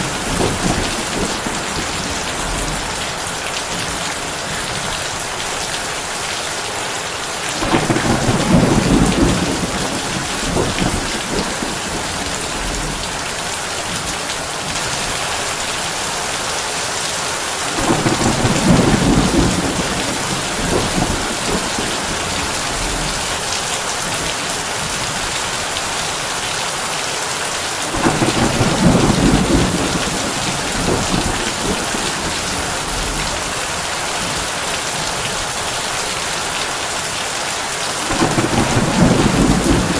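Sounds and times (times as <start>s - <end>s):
low thunder rolls: 0.0s - 5.0s, 7.6s - 16.0s, 17.6s - 25.3s, 27.9s - 35.2s, 38.0s - 39.9s
heavy rain on a tin roof: 0.0s - 39.9s.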